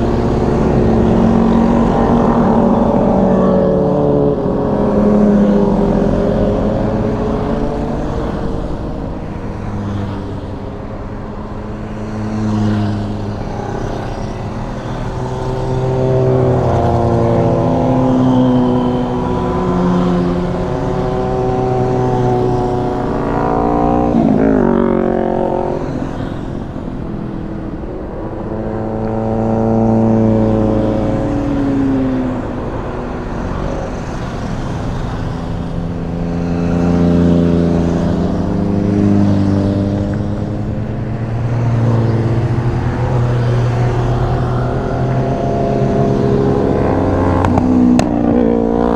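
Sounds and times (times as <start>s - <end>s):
motorcycle engines accelerating: 0.0s - 48.9s.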